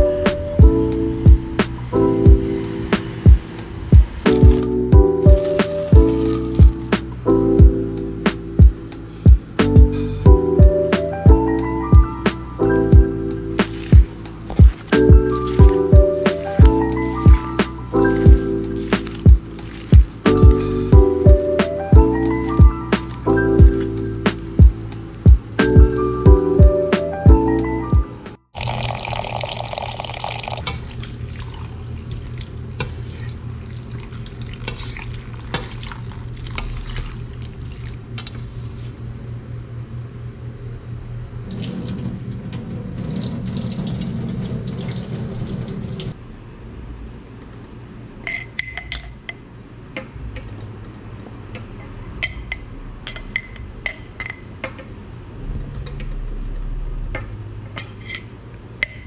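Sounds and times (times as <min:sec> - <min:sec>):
liquid sloshing and stirring: 0:05.4 - 0:06.9, 0:13.4 - 0:20.9, 0:28.6 - 0:38.4.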